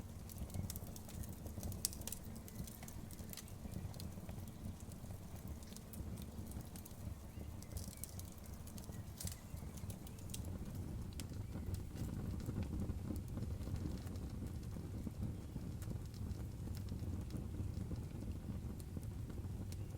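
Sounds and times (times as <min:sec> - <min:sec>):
bonfire crackling and popping: 0:00.0 - 0:19.9
low rumble of flames: 0:00.0 - 0:19.9.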